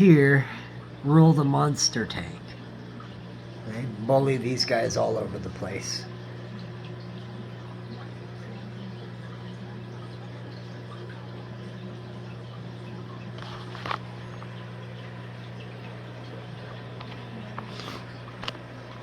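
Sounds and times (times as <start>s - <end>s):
aquarium equipment humming: 0.0s - 19.0s
water trickling: 0.0s - 19.0s.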